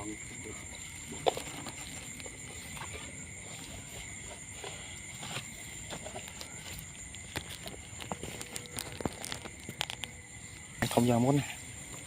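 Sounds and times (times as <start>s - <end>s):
insects chirring: 0.0s - 12.0s
small clicks and knocks: 7.3s - 10.2s.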